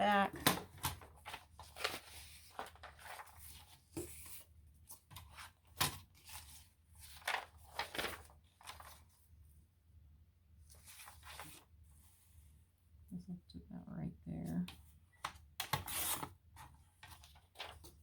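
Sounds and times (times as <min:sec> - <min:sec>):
paper rustling and crinkling: 0:00.3 - 0:09.2, 0:10.7 - 0:12.2, 0:15.6 - 0:18.0.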